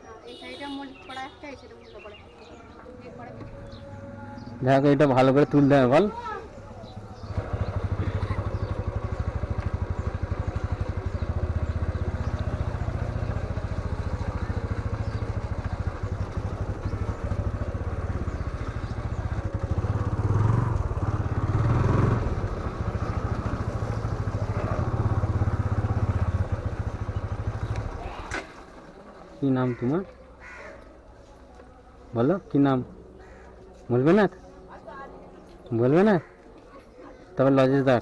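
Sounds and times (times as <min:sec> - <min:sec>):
motorcycle engine running: 0:01.8 - 0:29.6.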